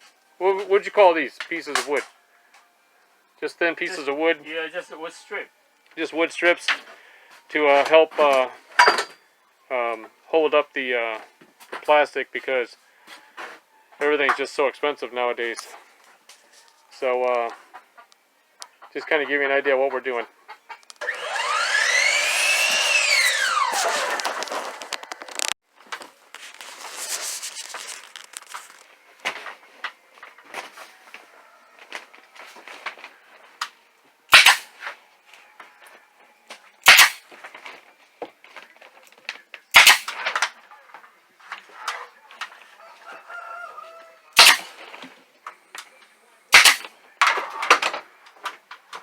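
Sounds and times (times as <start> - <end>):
loud sharp bangs: 34.3 - 34.7, 36.8 - 37.2, 39.7 - 40.2, 44.4 - 44.7, 46.5 - 46.9.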